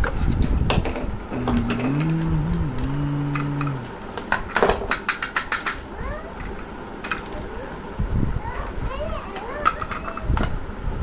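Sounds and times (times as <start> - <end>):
plastic clicks and clatters: 0.7 - 7.6, 9.3 - 10.6
low hum: 1.2 - 4.2.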